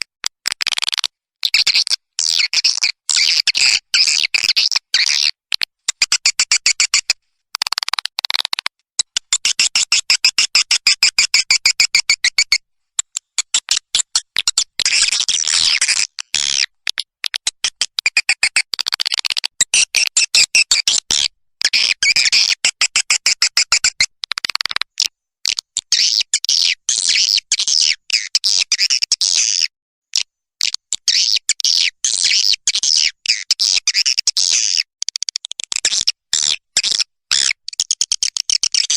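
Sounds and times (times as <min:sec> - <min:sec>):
recorded bird chirps and twitters: 0:01.4 - 0:07.1, 0:25.8 - 0:29.7, 0:30.6 - 0:38.9.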